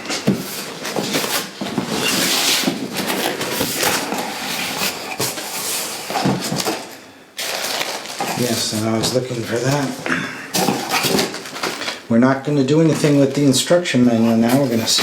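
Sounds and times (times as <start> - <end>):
packaging rustling: 0.0 - 12.1
packaging knocks and clicks: 10.6 - 12.0.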